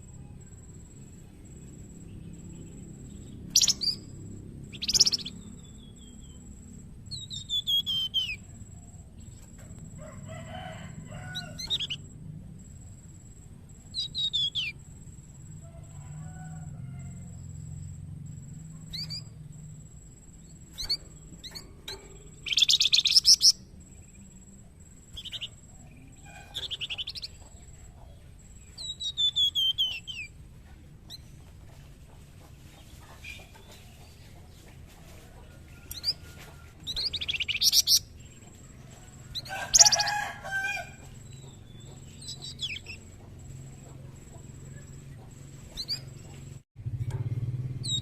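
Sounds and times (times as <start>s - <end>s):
faint low hum: 0.0s - 48.0s
songbird trills and whistles: 0.3s - 9.6s, 11.3s - 12.1s, 13.8s - 14.9s, 18.8s - 19.4s, 20.4s - 24.5s, 25.1s - 30.4s, 35.7s - 38.5s, 39.1s - 43.2s, 45.7s - 46.5s.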